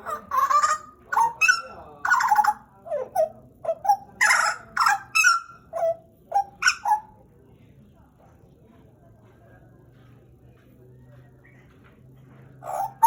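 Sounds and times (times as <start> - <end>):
bird calling with harsh and whistled notes: 0.1 - 7.2.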